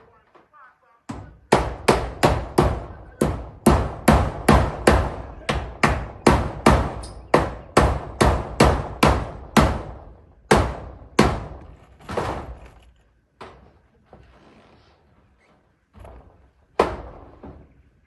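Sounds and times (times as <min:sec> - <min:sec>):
hammer striking nails into metal: 0:01.1 - 0:12.5.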